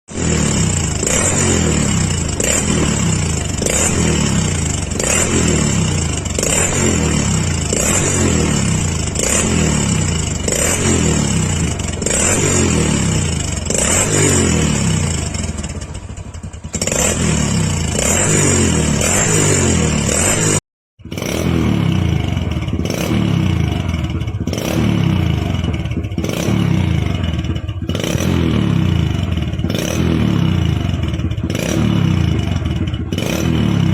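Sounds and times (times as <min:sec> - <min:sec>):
motorcycle engine revving: 0:00.1 - 0:33.9
exhaust cracks: 0:00.2 - 0:19.5.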